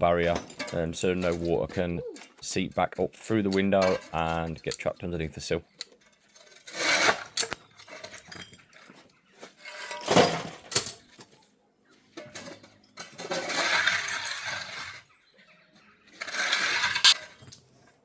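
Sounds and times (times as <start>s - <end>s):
scraping rustle of silicone: 13.3s - 15.0s, 16.2s - 17.0s.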